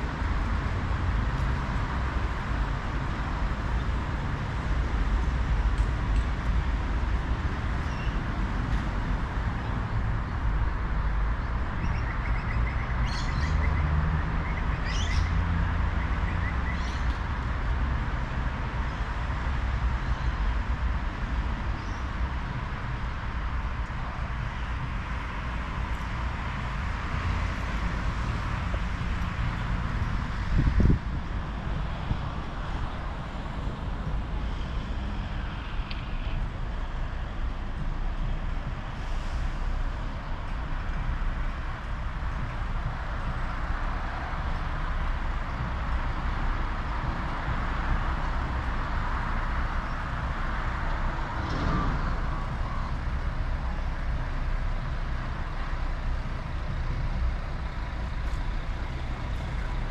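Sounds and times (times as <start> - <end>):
road traffic noise: 0.0 - 59.9
low rumble: 50.9 - 54.9.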